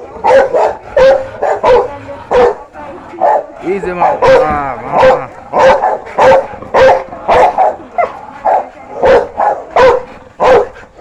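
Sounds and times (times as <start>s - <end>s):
dog barking: 0.0s - 11.0s.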